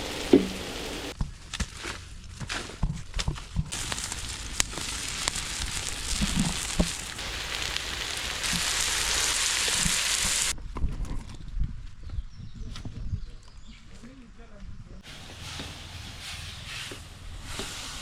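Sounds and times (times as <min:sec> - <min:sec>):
food sizzling in a pan: 0:03.7 - 0:10.5.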